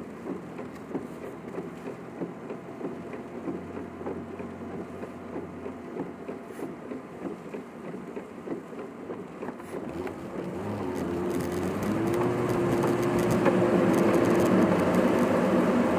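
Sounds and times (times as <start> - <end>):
car hum: 0.0 - 15.9
rain pattering on a car: 0.0 - 15.9.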